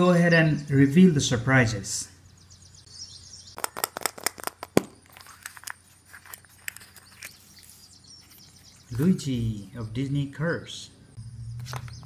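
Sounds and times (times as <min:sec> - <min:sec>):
plastic egg clicking and snapping: 0:03.6 - 0:07.4.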